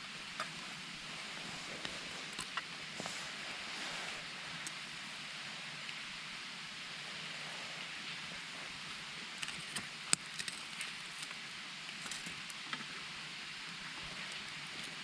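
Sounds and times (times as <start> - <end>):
campfire crackling and popping: 9.4 - 12.8.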